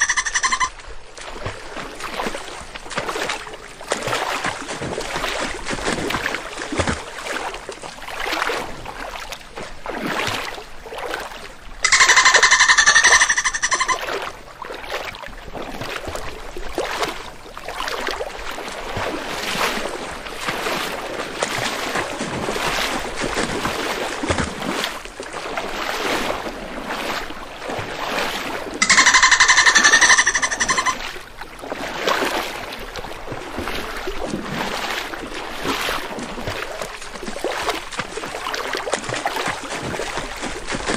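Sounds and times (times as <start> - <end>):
buzzy pulsed whale call: 0.0 - 0.7, 11.8 - 14.1, 28.8 - 31.1
water splashing and surging: 0.0 - 40.9.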